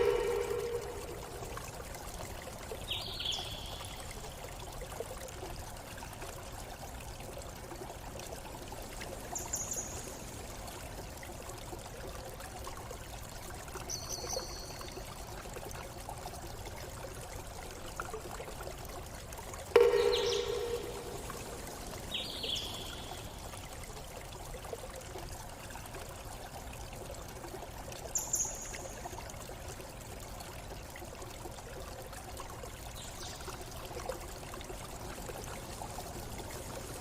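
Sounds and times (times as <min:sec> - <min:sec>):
loud low tone: 0:00.0 - 0:01.4, 0:19.8 - 0:21.6
stream running: 0:00.0 - 0:37.0
high bird calls: 0:19.8 - 0:21.4.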